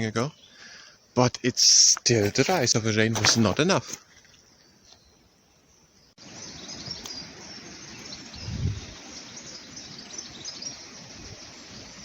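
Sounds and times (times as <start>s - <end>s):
outdoor background hiss: 0.0s - 12.0s
birds chirping and singing: 4.4s - 12.0s.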